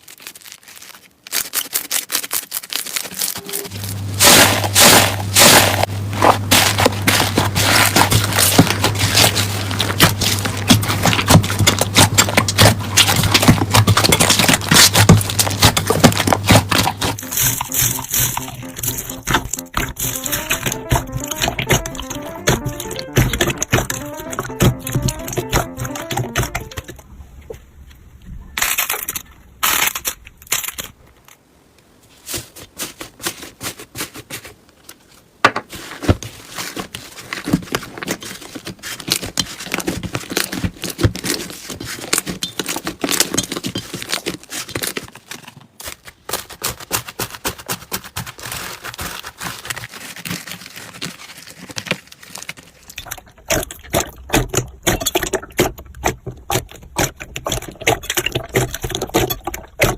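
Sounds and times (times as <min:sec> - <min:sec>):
slime crackling and popping: 0:00.0 - 0:26.8.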